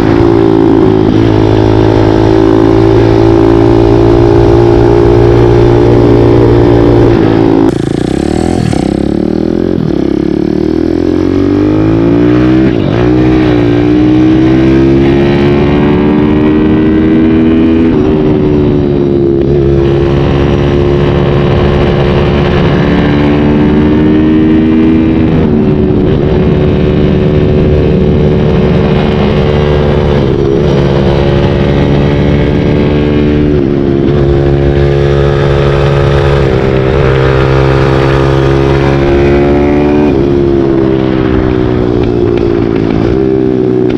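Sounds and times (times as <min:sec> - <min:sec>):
dirt bike engine revving: 0:00.0 - 0:18.0, 0:28.7 - 0:43.2.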